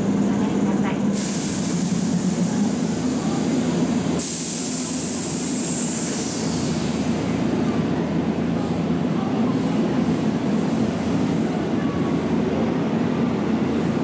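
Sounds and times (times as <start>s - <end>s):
electric train hissing: 0.0s - 8.0s.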